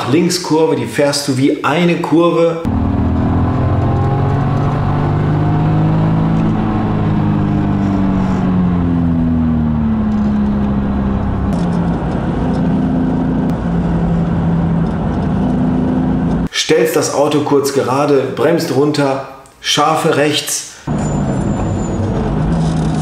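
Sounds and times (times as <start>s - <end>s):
car engine from inside cabin: 2.7s - 16.5s.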